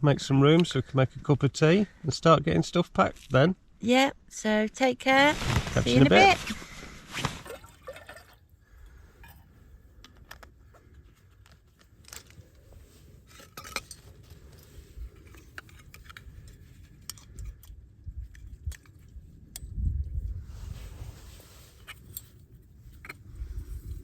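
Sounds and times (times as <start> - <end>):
camping gear clicking and rustling: 5.1 - 7.6, 9.2 - 19.8, 20.7 - 24.0.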